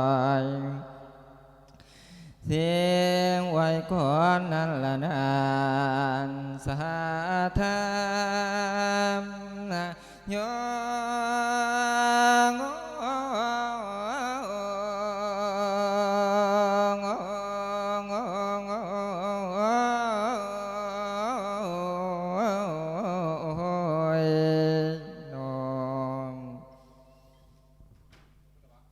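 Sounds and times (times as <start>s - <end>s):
monk chanting: 0.0s - 1.5s, 2.4s - 27.1s.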